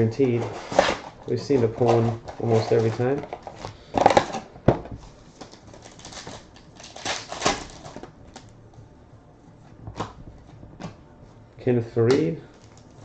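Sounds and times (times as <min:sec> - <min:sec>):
cards sliding rustles: 0:00.2 - 0:04.4.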